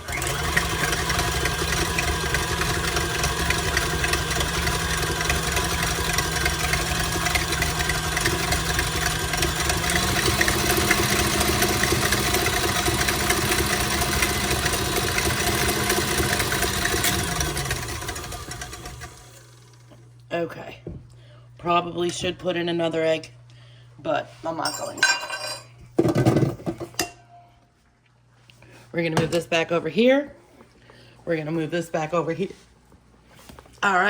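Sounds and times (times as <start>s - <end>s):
electric stand mixer running: 0.0s - 20.2s.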